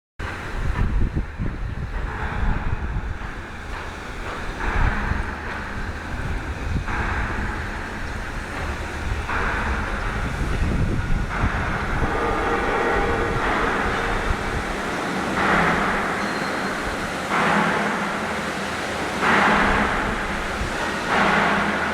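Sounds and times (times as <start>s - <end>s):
factory machinery rumble: 0.2s - 21.9s
hissing surges: 7.8s - 17.5s.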